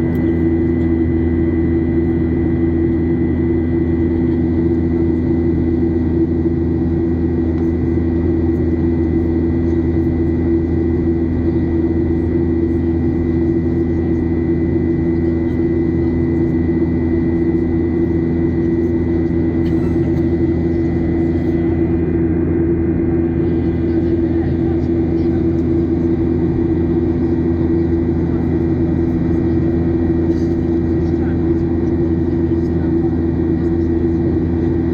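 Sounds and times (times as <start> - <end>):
jet engines drone in cabin: 0.0 - 34.9
high engine whine: 13.6 - 34.9.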